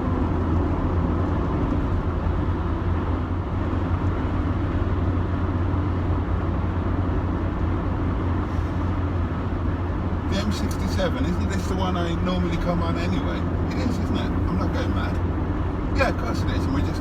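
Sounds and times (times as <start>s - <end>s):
car engine hum: 0.0s - 17.0s
tyre and road noise: 0.0s - 17.0s.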